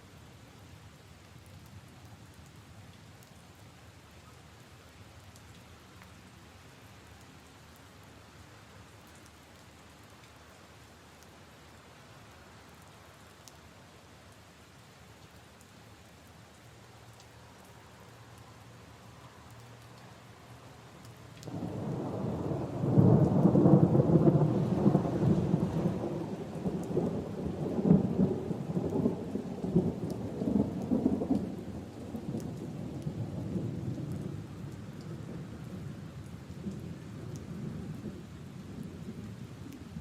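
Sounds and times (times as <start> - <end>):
steady rain: 0.0 - 40.0
rolling thunder: 21.5 - 31.4.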